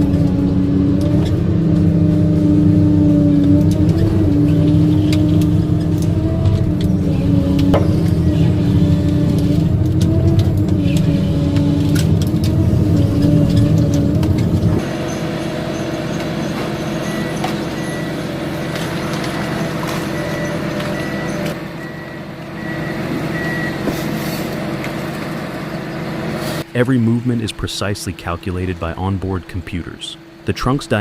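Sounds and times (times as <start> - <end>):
diesel engine and hydraulics under load: 0.0 - 31.0
machine alarm beeping: 15.0 - 23.9.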